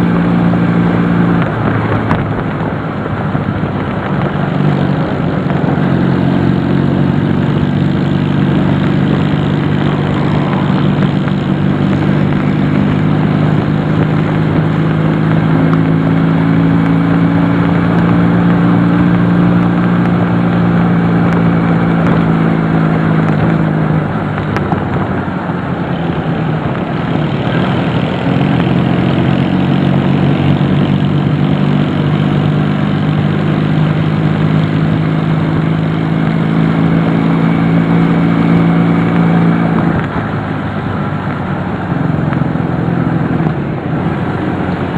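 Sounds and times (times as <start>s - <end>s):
rushing noise: 0.0s - 16.8s
motorcycle engine running: 0.0s - 44.9s.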